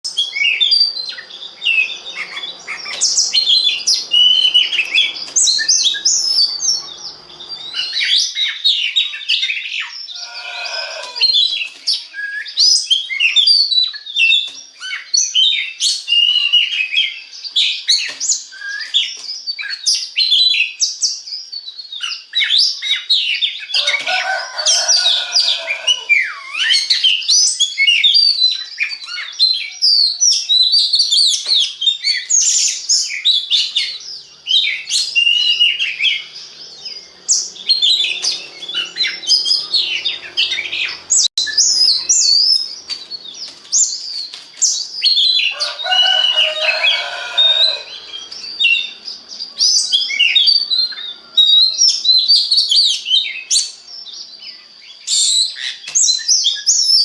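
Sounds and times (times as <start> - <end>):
bird singing chirps and whistles: 0.0 - 57.0.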